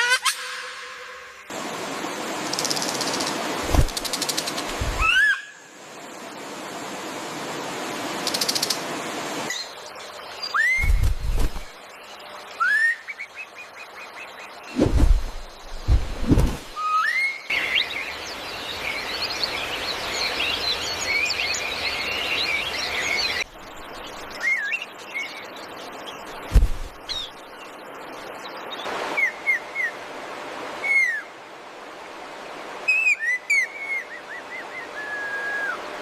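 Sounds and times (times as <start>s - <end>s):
birds chirping: 9.5s - 16.8s
whistled bird calls: 10.4s - 11.1s, 12.6s - 13.4s, 16.8s - 18.0s, 30.8s - 31.3s, 32.9s - 35.9s
brief thump: 26.5s - 26.9s.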